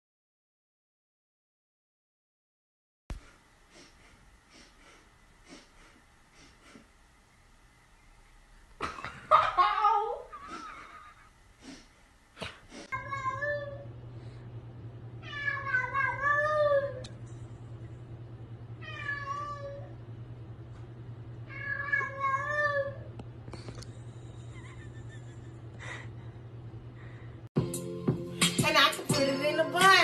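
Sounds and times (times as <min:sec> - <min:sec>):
steady low hum: 0:03.1 - 0:27.5
cat meowing: 0:15.2 - 0:17.0, 0:18.8 - 0:19.9, 0:21.5 - 0:23.1.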